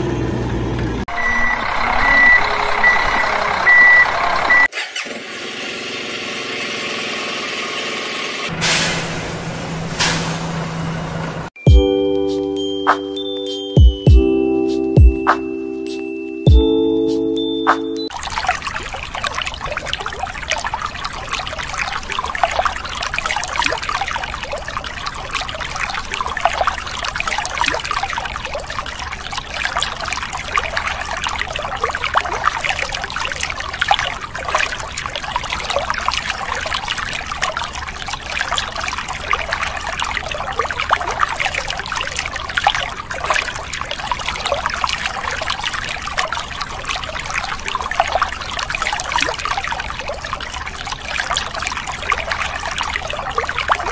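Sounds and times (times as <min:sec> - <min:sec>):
water splashing onto wet sand: 0:17.8 - 0:53.9.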